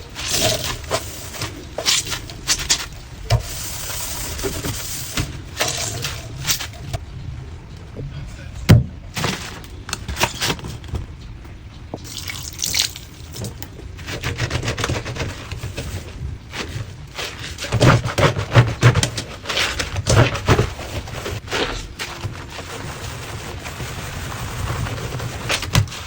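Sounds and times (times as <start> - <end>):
water dripping and splashing: 12.0 - 13.7.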